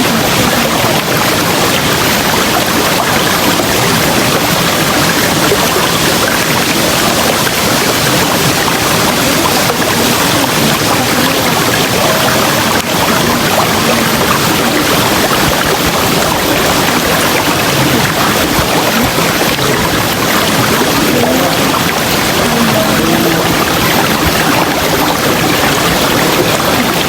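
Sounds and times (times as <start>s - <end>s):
river water rushing and gurgling: 0.0s - 27.0s.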